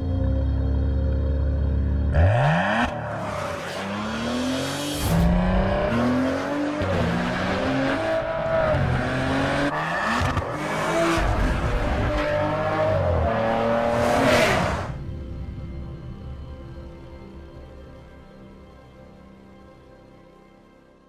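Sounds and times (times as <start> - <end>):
car engine accelerating through gears: 2.1 - 15.0.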